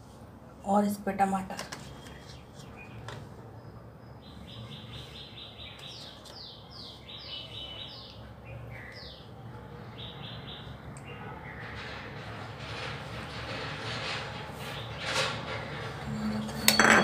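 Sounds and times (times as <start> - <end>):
bird chirping: 1.8 - 9.4.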